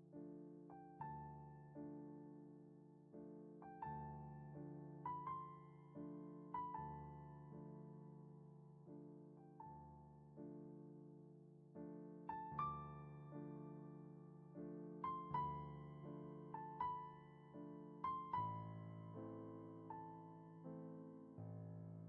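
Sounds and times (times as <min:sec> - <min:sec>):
soft solo piano music: 0:00.0 - 0:22.0.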